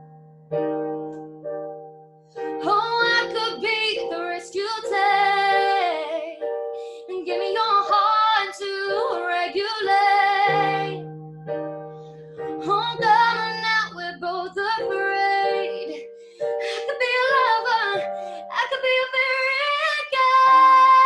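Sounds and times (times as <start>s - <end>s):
person singing: 2.5s - 6.4s, 7.1s - 11.0s.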